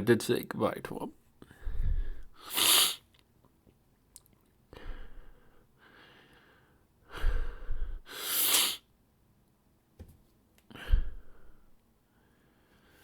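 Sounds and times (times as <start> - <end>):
person sighing and breathing heavily: 1.5 - 2.8, 4.7 - 8.2, 10.7 - 11.7.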